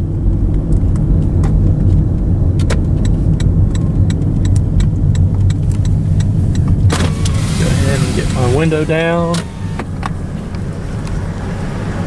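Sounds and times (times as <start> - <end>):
car engine and road rumble: 0.0 - 12.0
light evenly spaced ticks: 0.4 - 6.9.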